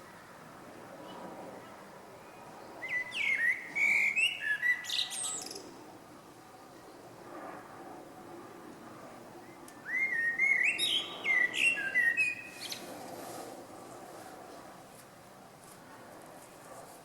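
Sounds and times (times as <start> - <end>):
songbird singing whistled notes: 2.2 - 5.7, 9.4 - 12.8.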